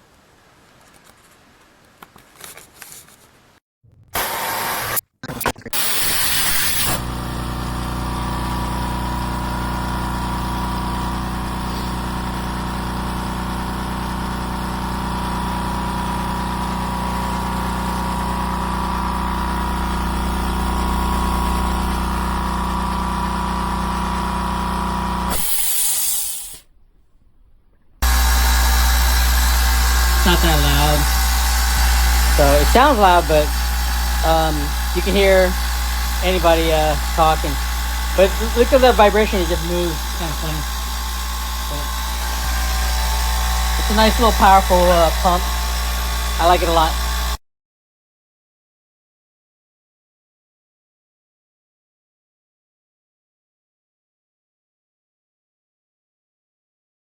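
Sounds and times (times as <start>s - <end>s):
air compressor running: 4.2s - 5.0s, 5.8s - 26.7s, 28.0s - 47.4s
air hissing: 5.8s - 7.1s, 25.3s - 26.7s.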